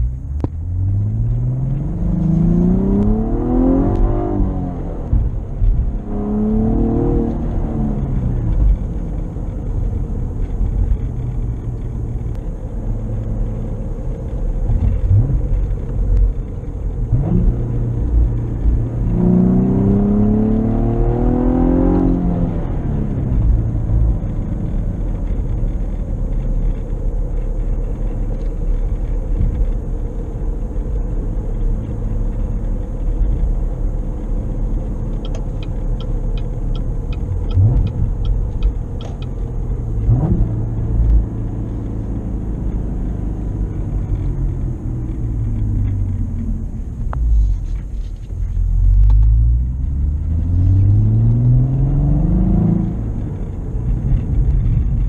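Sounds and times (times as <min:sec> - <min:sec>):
car engine revving: 0:00.0 - 0:55.0
regular ticks: 0:35.1 - 0:39.5.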